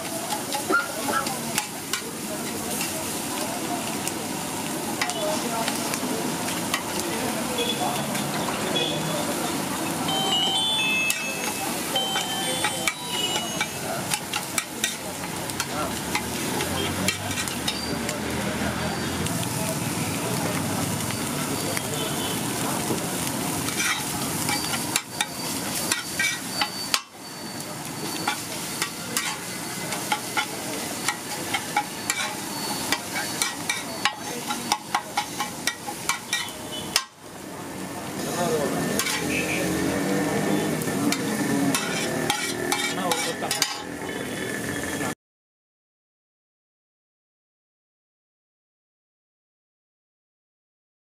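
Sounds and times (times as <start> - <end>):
fish and egg sizzling in oil: 0.0 - 44.9
steel spatula scraping griddle: 10.8 - 18.3, 22.9 - 37.2, 38.2 - 44.3.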